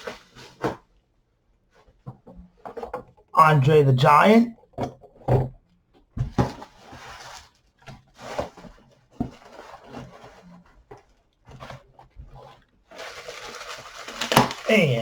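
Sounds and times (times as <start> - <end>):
bubble wrap and plastic rustling: 6.5 - 10.5, 12.9 - 15.0.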